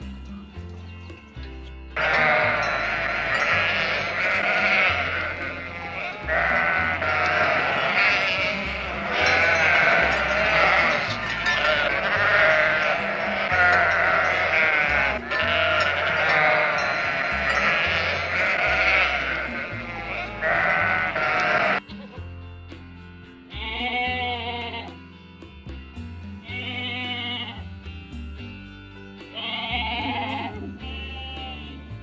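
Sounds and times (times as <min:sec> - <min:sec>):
background music with bass: 0:00.0 - 0:32.0
sheep bleating: 0:02.0 - 0:21.8, 0:23.6 - 0:25.0, 0:26.4 - 0:27.7, 0:29.3 - 0:31.9.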